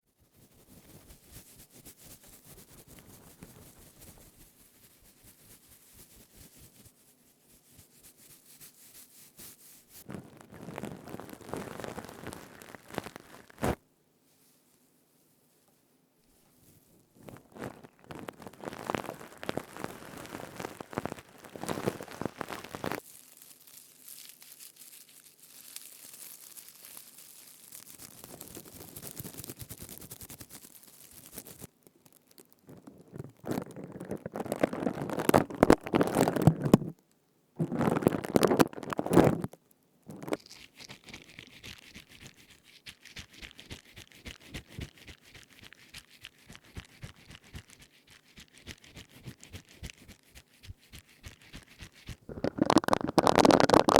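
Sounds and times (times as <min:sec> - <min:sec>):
scouring pads crackling: 0:08.5 - 0:13.8, 0:17.3 - 0:37.0, 0:37.6 - 0:41.9, 0:42.6 - 0:53.9.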